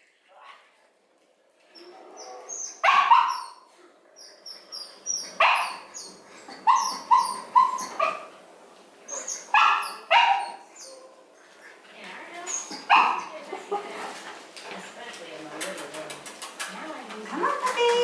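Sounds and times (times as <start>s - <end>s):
puppies yipping: 1.7s - 8.3s, 9.1s - 11.2s, 12.4s - 13.4s
puppies barking: 1.8s - 8.5s, 9.1s - 11.2s, 12.5s - 13.4s.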